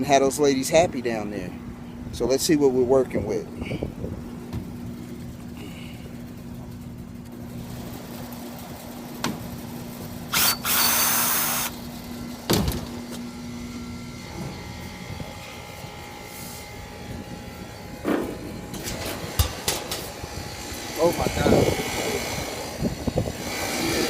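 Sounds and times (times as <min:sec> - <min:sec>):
steady hum: 0:00.0 - 0:24.0
power tool whirring: 0:10.3 - 0:12.2, 0:20.0 - 0:24.0.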